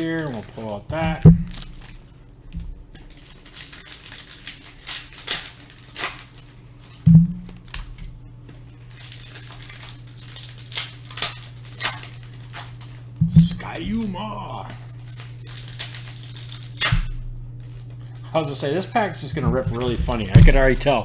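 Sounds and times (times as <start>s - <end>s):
cards being handled: 0.0s - 21.0s
foil wrapper crinkling and tearing: 0.0s - 21.0s
low steady hum: 0.0s - 21.0s.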